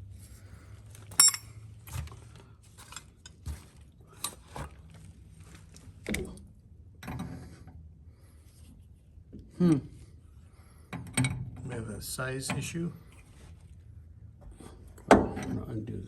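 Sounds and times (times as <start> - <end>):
wrench clinking on metal fittings: 1.1 - 1.6.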